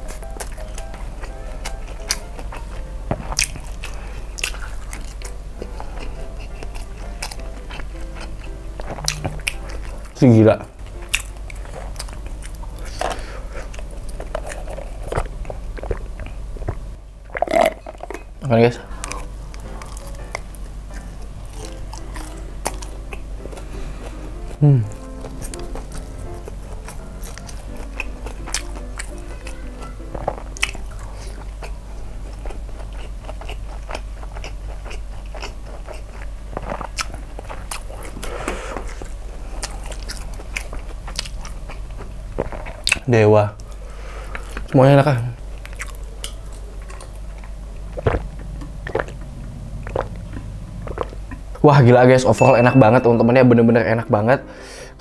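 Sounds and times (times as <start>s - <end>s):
person chewing food: 0.0s - 10.2s, 10.8s - 44.8s, 45.4s - 51.6s
wet mouth sounds: 45.6s - 51.6s.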